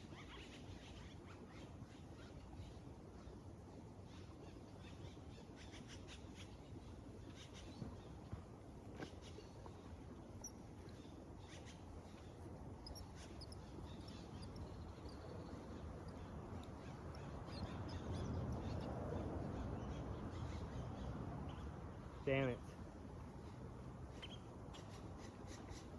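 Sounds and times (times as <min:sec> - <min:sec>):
low outdoor rumble: 0:07.8 - 0:24.6
faint bird calls: 0:09.0 - 0:22.2.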